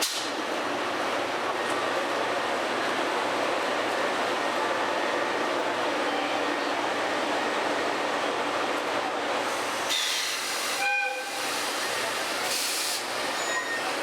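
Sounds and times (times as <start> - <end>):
train rumble and hiss: 0.0 - 14.0
high-pitched train toot: 9.9 - 12.6, 13.3 - 14.0.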